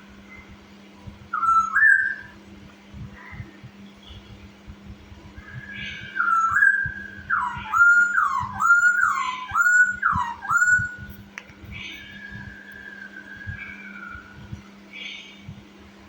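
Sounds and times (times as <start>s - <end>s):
steady low hum: 0.0s - 16.0s
bird singing whistled notes: 1.3s - 2.4s, 5.4s - 15.6s.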